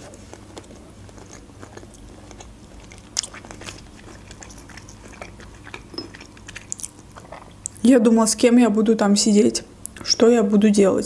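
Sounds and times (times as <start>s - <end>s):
person chewing soft fruit: 0.0s - 7.8s.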